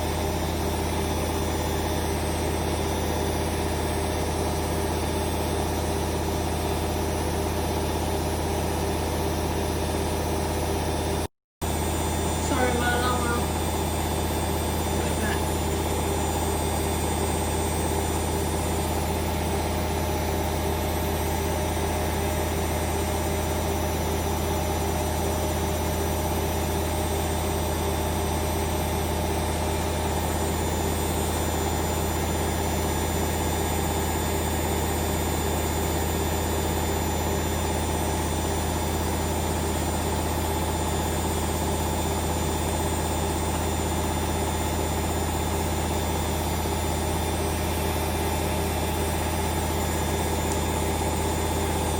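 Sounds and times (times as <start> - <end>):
washing machine spinning: 0.0 - 51.9.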